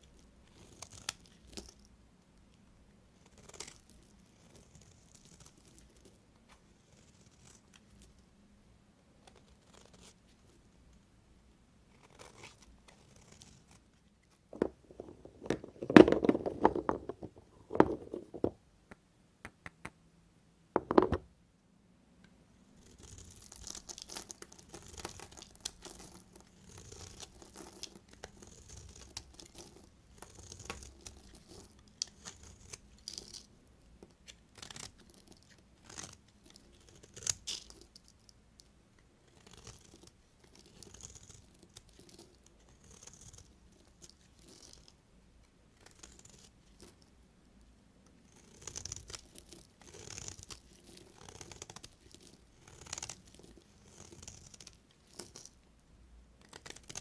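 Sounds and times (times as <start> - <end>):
crisp scraping and crackling: 22.8 - 33.5, 39.3 - 44.9, 48.4 - 55.6, 56.4 - 57.0.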